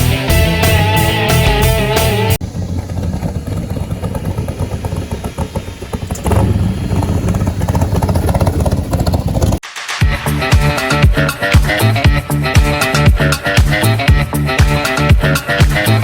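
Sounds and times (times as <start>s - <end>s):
vehicle engine pulsing rumble: 0.0s - 9.6s.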